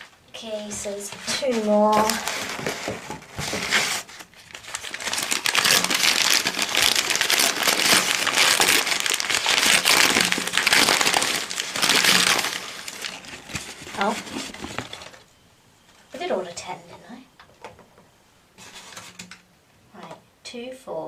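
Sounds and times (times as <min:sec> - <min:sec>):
packaging crinkling by hand: 0:00.4 - 0:15.3.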